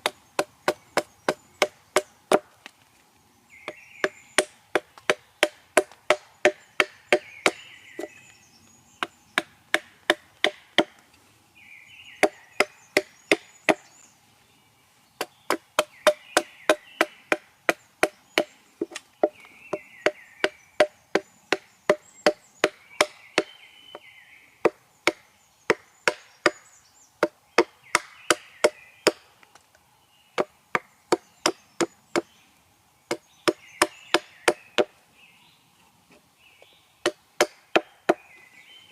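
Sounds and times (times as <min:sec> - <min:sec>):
hatchet chopping wood: 0:00.0 - 0:02.6, 0:03.7 - 0:08.1, 0:09.0 - 0:11.0, 0:12.2 - 0:13.8, 0:15.2 - 0:23.5, 0:24.6 - 0:26.6, 0:27.2 - 0:29.2, 0:33.1 - 0:34.9, 0:37.0 - 0:38.2
birds singing: 0:00.0 - 0:38.9.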